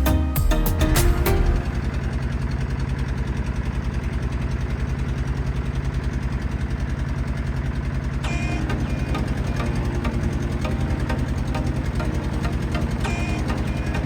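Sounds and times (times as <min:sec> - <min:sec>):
boat engine throbbing: 0:08.2 - 0:14.0.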